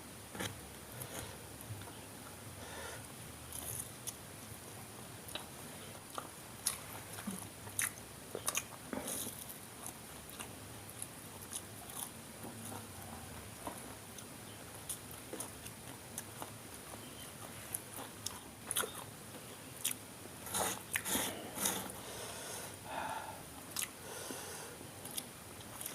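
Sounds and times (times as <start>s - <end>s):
chewing with small clicks: 6.1s - 21.1s, 23.7s - 24.0s, 25.0s - 25.9s.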